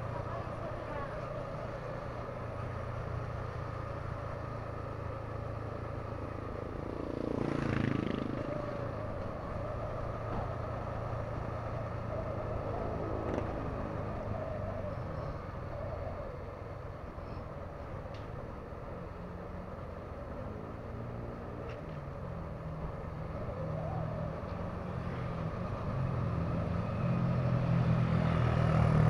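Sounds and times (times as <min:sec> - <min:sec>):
motorcycle engine running: 0:00.0 - 0:09.7
vehicle passing by: 0:05.5 - 0:16.4, 0:22.5 - 0:29.0.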